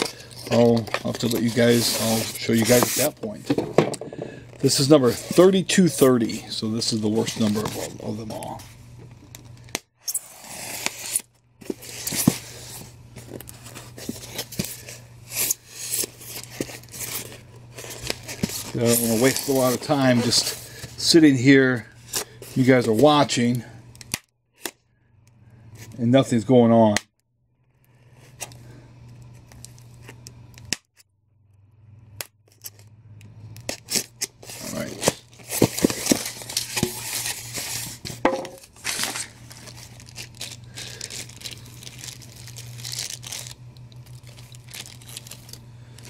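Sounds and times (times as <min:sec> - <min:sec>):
plastic and foam rustling: 0:00.0 - 0:08.8, 0:11.6 - 0:21.2, 0:34.3 - 0:46.0
low steady hum: 0:00.0 - 0:27.0, 0:27.6 - 0:46.0.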